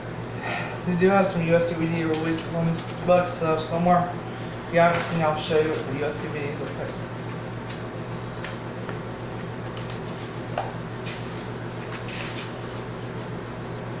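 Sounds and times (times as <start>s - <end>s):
steady low hum: 0.0s - 14.0s
book and packaging rustling: 2.1s - 3.1s, 4.8s - 6.2s, 11.0s - 13.4s.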